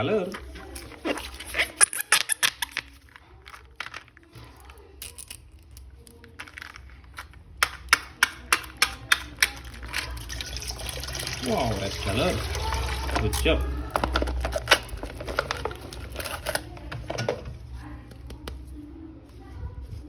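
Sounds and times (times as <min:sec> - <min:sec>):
plastic rustling: 0:00.0 - 0:07.6, 0:09.3 - 0:18.0
plastic clicking and crinkling: 0:00.3 - 0:10.3, 0:13.1 - 0:18.6.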